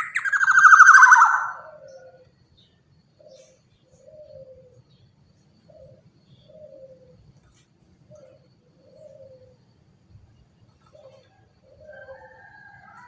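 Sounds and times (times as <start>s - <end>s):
high bird chirps: 0.0s - 1.7s
dove cooing: 0.0s - 2.4s, 3.2s - 5.0s, 5.6s - 9.8s, 10.7s - 13.0s.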